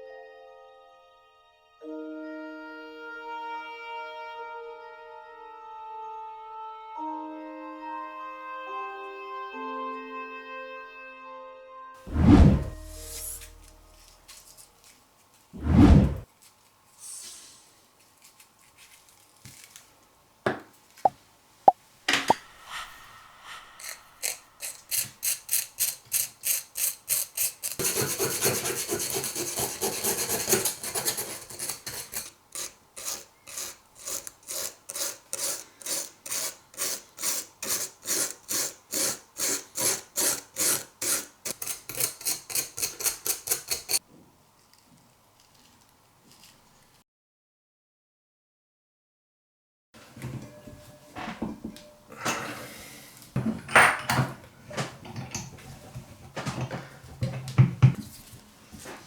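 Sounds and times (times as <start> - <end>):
abrasive scraping steel: 12.1 - 14.3, 22.3 - 25.9.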